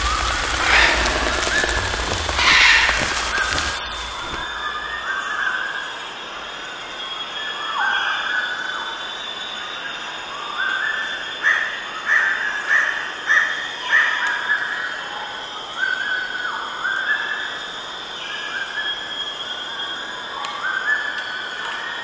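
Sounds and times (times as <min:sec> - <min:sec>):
birds chirping: 0:00.0 - 0:05.2
high-pitched ambient hiss: 0:00.0 - 0:05.5.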